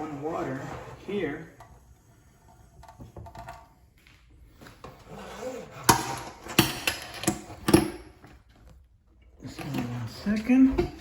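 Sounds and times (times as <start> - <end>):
hard objects knocking: 5.9 - 8.3.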